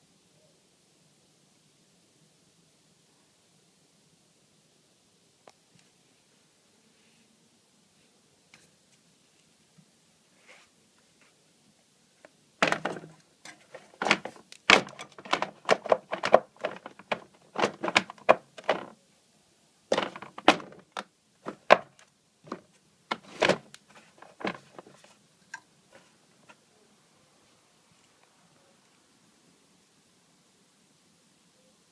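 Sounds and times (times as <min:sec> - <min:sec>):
hard parts knocking and clacking: 0:12.6 - 0:18.9, 0:19.9 - 0:24.8.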